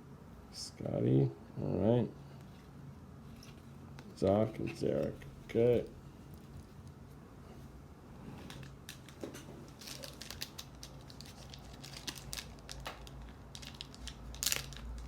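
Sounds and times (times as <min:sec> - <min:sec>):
trading cards clicking and rustling: 0:08.4 - 0:15.0.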